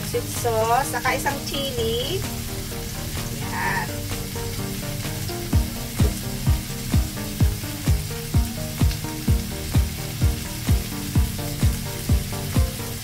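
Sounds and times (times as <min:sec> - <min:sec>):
background music with kick drum: 0:00.0 - 0:13.0
vegetables sizzling in a wok: 0:00.0 - 0:13.0.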